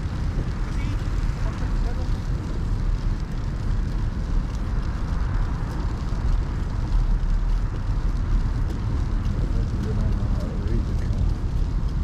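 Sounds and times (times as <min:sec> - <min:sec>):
wind buffeting microphone: 0:00.0 - 0:12.0
faint ticks: 0:03.0 - 0:10.2.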